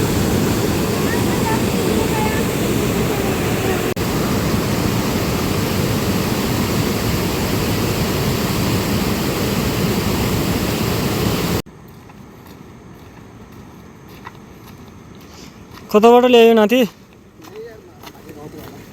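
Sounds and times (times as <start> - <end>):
rushing water roar: 0.0 - 11.6.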